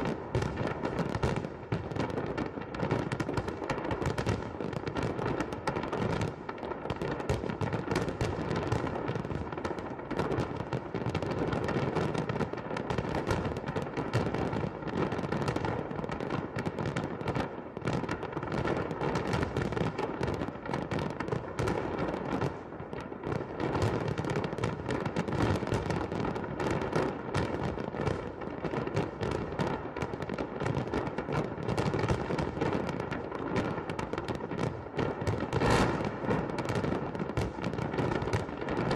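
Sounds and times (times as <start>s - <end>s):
fireworks bursting and crackling: 0.0s - 38.9s.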